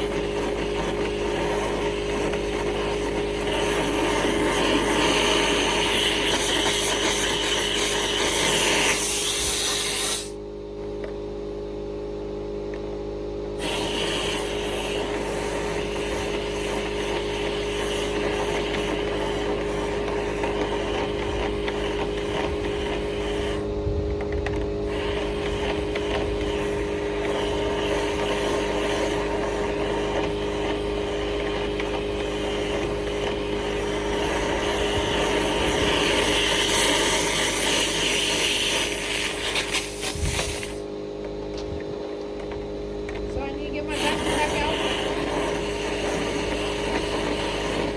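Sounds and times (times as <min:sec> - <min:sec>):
brush scraping in vent: 0:00.0 - 0:10.3, 0:13.6 - 0:23.7, 0:24.3 - 0:40.8, 0:43.4 - 0:47.9
power drill motor hum: 0:13.6 - 0:40.9.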